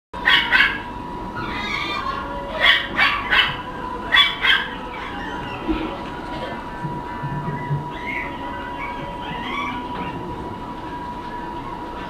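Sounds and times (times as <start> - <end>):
puppy yapping: 0.2 - 6.6, 7.6 - 10.2.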